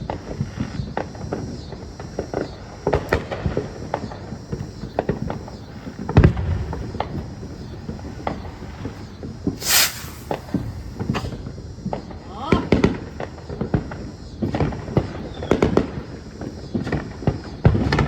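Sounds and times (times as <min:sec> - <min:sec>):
fireworks popping and crackling: 0:05.0 - 0:11.3.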